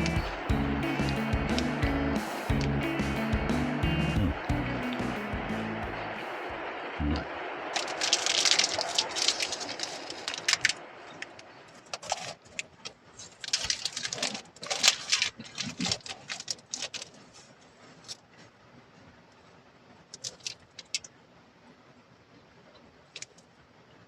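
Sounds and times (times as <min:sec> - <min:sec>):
food crackling in a pan: 0:07.8 - 0:11.3.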